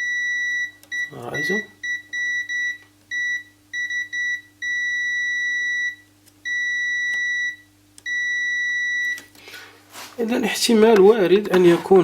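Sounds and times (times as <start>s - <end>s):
multimeter beeps: 0.0s - 9.3s.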